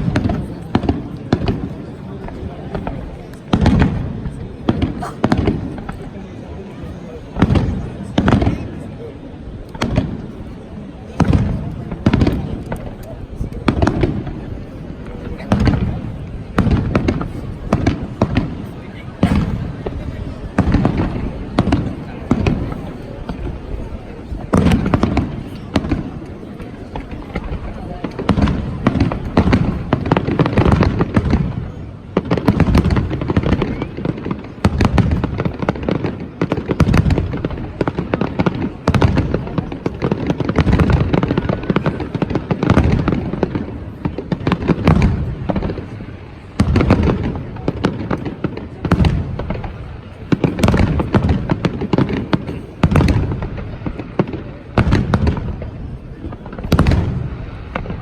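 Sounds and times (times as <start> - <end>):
firework crackle: 0.0 - 6.2, 7.4 - 58.0.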